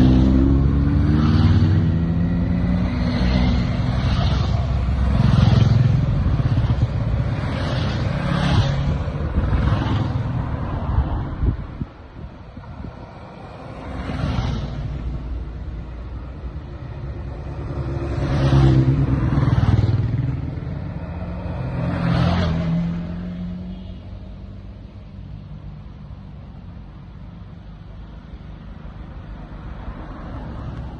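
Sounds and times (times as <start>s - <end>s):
motorcycles riding past: 0.0s - 11.8s, 12.8s - 23.8s.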